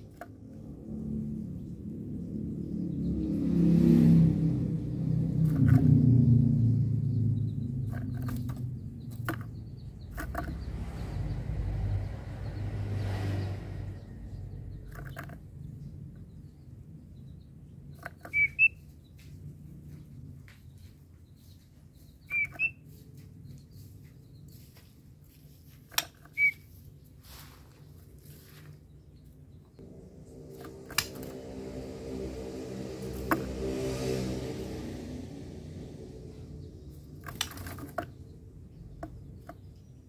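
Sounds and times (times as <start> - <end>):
low rumble: 0.0 - 20.5, 29.6 - 40.0.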